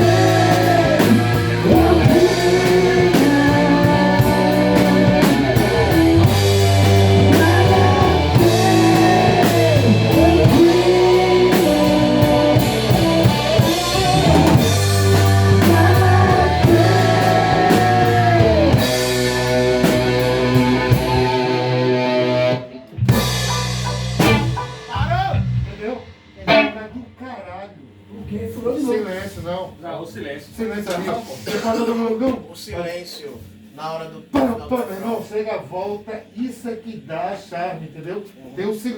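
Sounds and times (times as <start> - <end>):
rock band playing: 0.0 - 27.2
steady low bass notes: 0.0 - 27.2.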